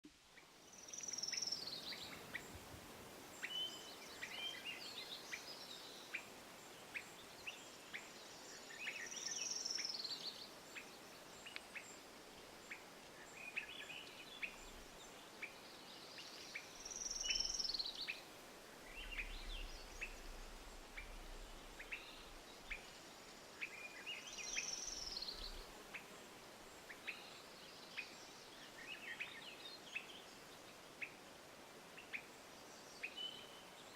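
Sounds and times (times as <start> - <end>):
creek water flowing: 11.2 - 25.7.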